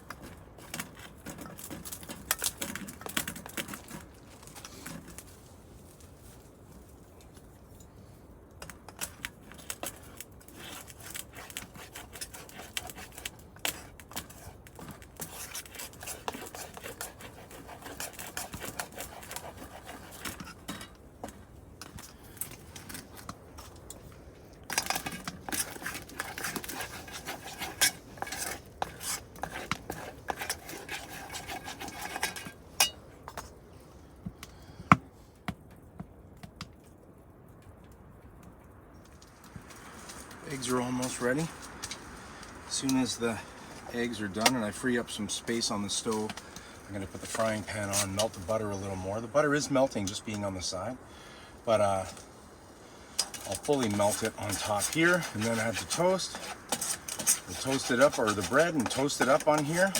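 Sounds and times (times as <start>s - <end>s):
utensil scraping a pan: 9.0s - 23.7s, 24.6s - 33.5s, 42.7s - 50.5s, 53.1s - 59.9s.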